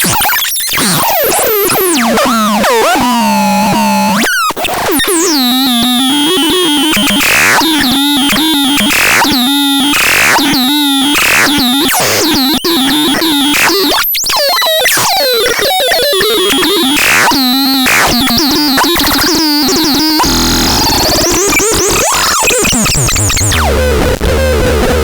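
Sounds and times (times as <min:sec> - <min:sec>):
bursts of noise: 0:16.8 - 0:25.0.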